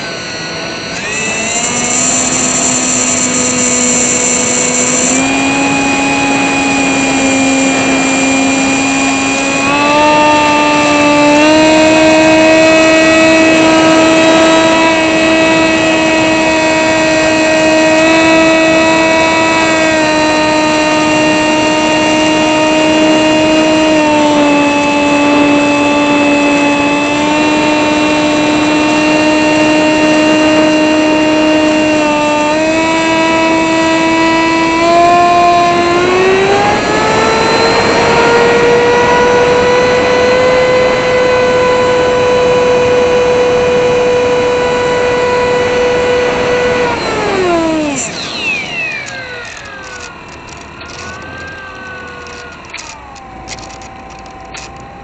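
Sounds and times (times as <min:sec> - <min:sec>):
electric motor and propeller whine: 0:00.0 - 0:55.0.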